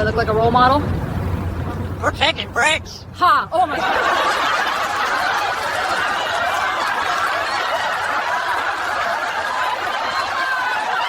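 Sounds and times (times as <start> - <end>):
crowd laughing: 3.6 - 11.0.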